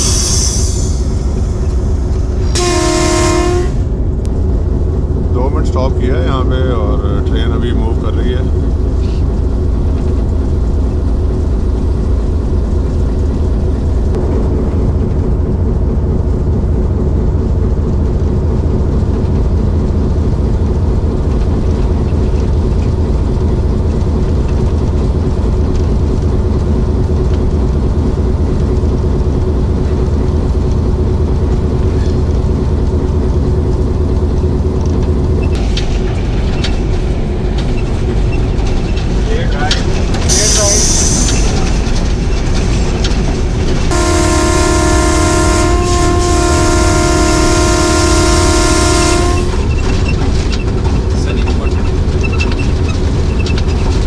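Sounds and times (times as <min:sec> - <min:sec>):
train rumbling: 0:00.0 - 0:54.0
train wheels clicking: 0:34.3 - 0:43.9.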